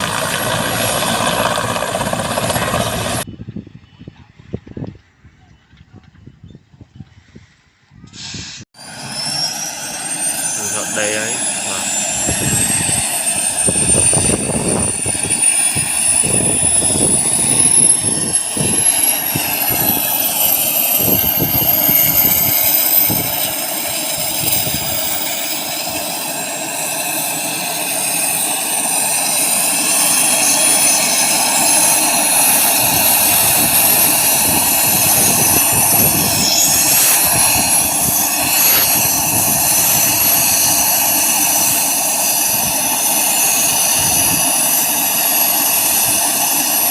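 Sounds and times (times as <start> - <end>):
helicopter turbine whine: 0.0 - 3.3, 8.8 - 46.9
continuous rumble: 0.0 - 6.4, 30.4 - 46.9
gusty low thumps: 32.8 - 40.9.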